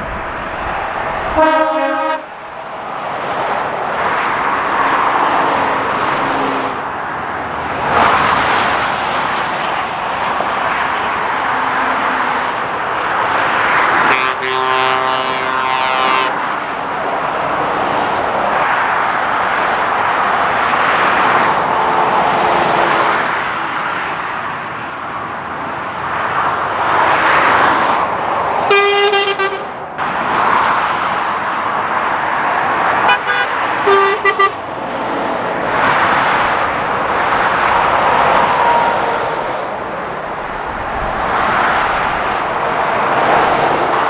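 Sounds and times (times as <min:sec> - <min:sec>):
long horn blast: 0:00.0 - 0:02.4, 0:05.8 - 0:06.9, 0:14.0 - 0:16.4, 0:28.7 - 0:29.7, 0:33.0 - 0:34.7
heavy road traffic passing: 0:00.0 - 0:44.0
short horn toots: 0:01.3 - 0:02.2.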